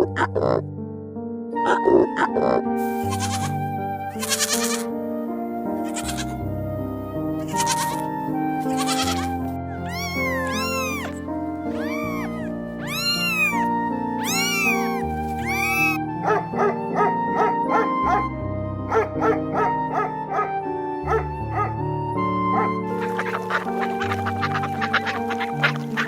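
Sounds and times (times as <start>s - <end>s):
background music: 0.0s - 26.0s
animal calls: 2.8s - 4.9s, 5.8s - 6.4s, 7.4s - 16.4s, 22.6s - 26.0s.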